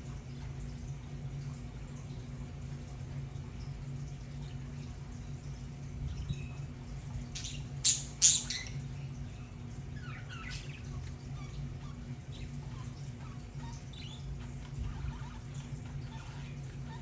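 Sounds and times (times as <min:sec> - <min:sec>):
budgerigars squawking and chirping: 0:07.4 - 0:08.8, 0:10.0 - 0:17.0.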